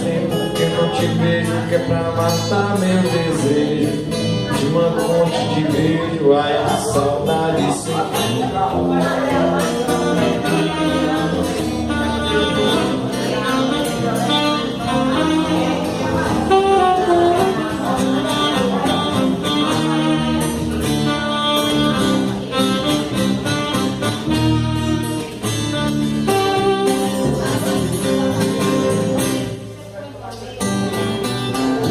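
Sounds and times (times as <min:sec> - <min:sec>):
strummed acoustic guitar: 0:00.0 - 0:31.9
saxophone melody: 0:06.0 - 0:29.7.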